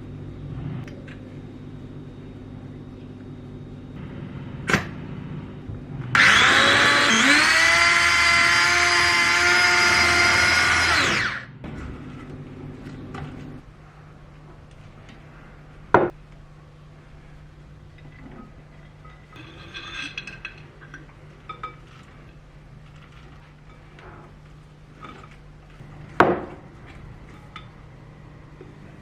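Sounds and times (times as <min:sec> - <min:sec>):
kitchen appliance motor whine: 0:04.0 - 0:11.7.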